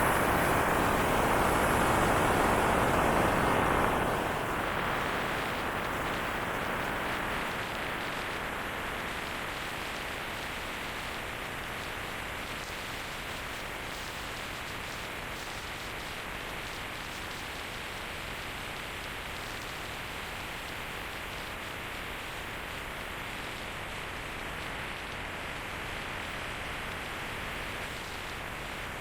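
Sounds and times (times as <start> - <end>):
wind rushing on microphone: 0.0 - 8.0.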